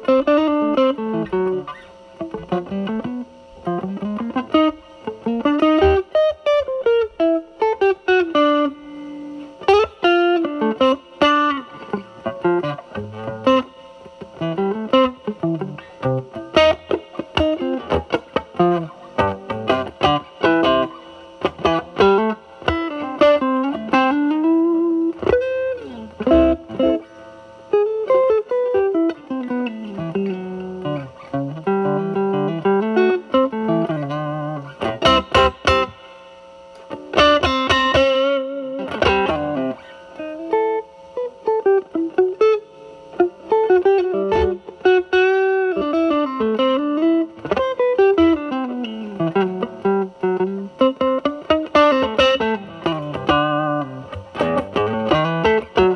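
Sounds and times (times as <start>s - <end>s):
fuzz electric guitar lead lines: 0.0s - 55.9s.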